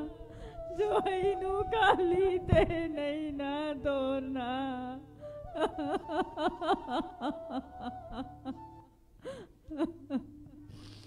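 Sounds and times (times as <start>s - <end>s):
man sobbing: 5.5s - 10.6s.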